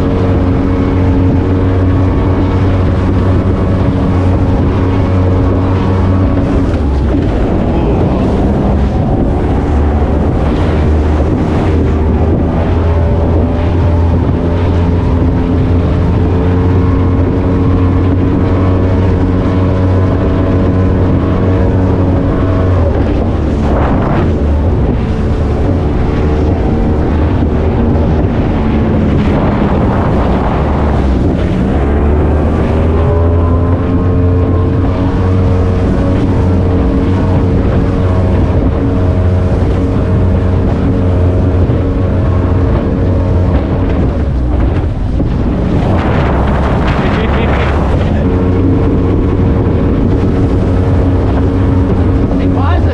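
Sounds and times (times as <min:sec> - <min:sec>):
speedboat engine running hard: 0:00.0 - 0:52.9
wind noise on microphone: 0:00.0 - 0:52.9.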